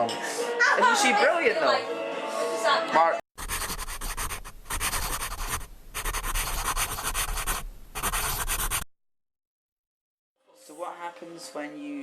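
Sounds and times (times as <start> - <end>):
loud scratching and rubbing: 3.4 - 8.8.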